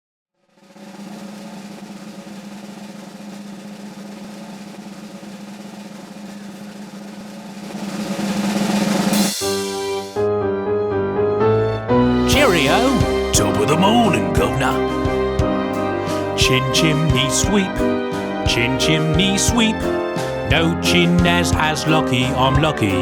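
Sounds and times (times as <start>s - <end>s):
snare drum roll: 0.4s - 10.2s, 12.3s - 15.0s
cymbal crash: 0.5s - 10.2s.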